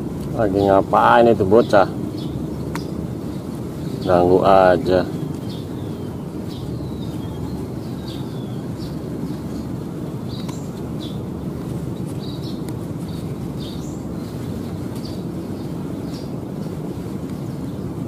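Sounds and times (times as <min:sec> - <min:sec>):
low outdoor rumble: 0:00.0 - 0:18.0
small birds chirping: 0:00.0 - 0:18.0.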